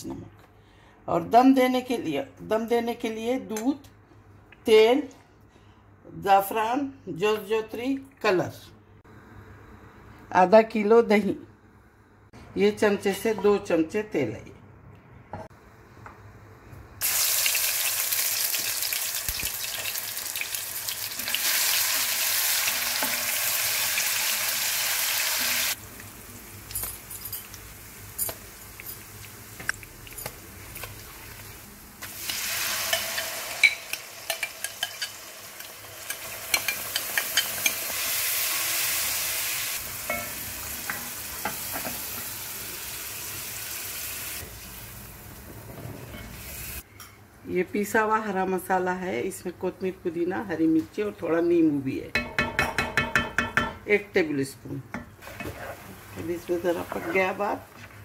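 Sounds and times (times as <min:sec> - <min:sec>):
paste sizzling in hot oil: 0:17.0 - 0:26.3
spices sizzling in oil: 0:17.0 - 0:46.8, 0:55.2 - 0:58.0
spoon stirring against pot: 0:32.9 - 0:37.9, 0:54.9 - 0:57.9.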